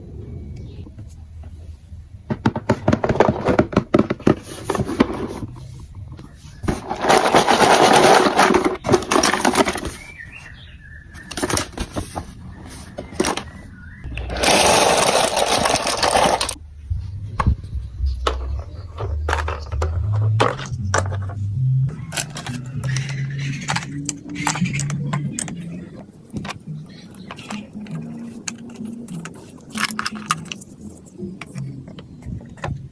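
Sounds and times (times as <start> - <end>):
marbles clattering: 6.8 - 9.8, 14.1 - 16.6, 18.3 - 25.8
low rolling rumble of marbles: 14.1 - 30.7.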